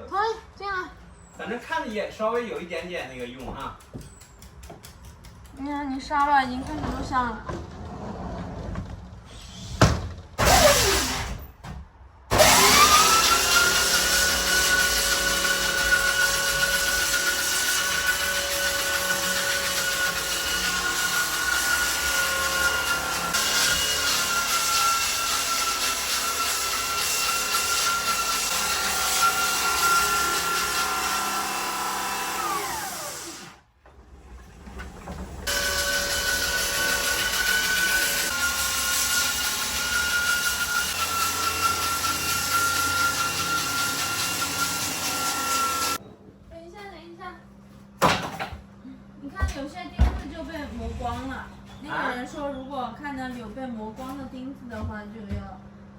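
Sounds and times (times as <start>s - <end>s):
electric sander on wood: 12.3s - 33.6s, 35.5s - 46.0s.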